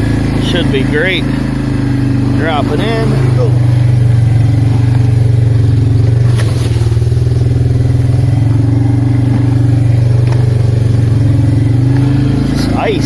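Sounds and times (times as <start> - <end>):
atv engine running: 0.0 - 13.0
crackling scrape: 6.0 - 7.8.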